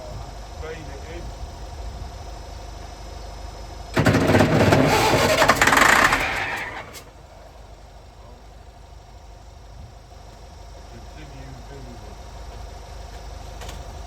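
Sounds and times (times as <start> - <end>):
diesel engine cranking with starter motor: 3.9 - 8.7.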